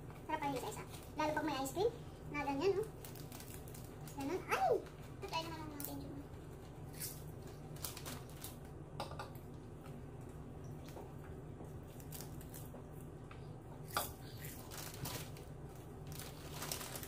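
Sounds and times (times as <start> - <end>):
steady low hum: 0.0 - 17.0
chewing crispy seaweed: 2.9 - 4.3, 10.8 - 17.0.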